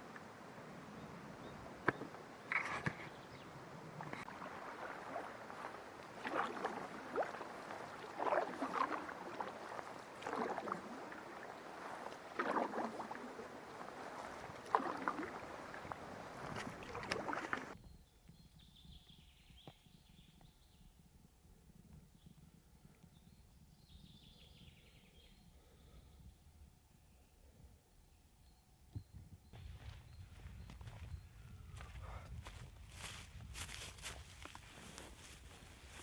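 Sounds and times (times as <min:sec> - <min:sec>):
paddle splashing in water: 0:04.0 - 0:17.8.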